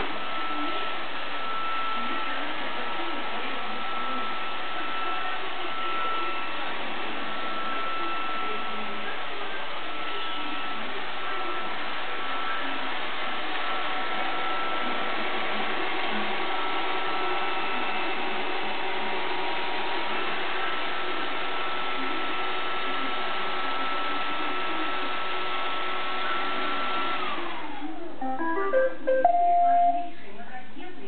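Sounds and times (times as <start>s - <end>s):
short electronic beeps: 28.2s - 30.1s.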